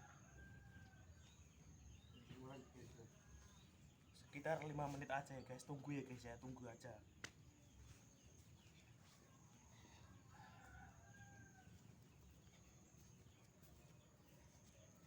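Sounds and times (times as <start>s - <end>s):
faint rooster crowing: 0.0s - 1.6s, 9.2s - 15.0s.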